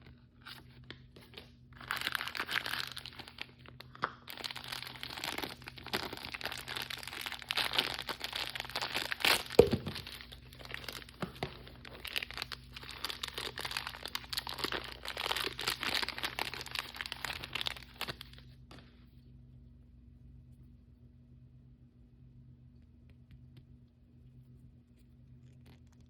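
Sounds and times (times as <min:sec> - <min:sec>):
plastic packaging crinkling and tearing: 0:00.4 - 0:18.5.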